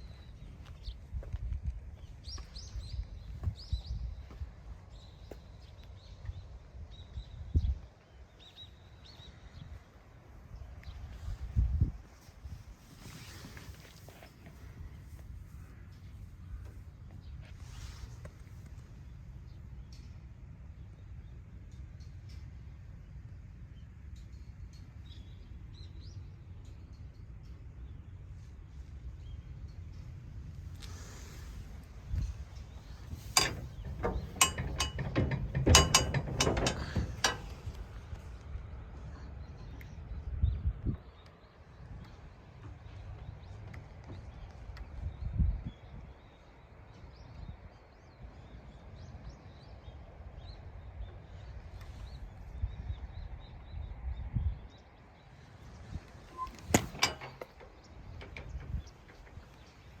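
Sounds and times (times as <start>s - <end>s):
metallic clicks and clanks: 32.9s - 38.0s, 56.2s - 59.9s.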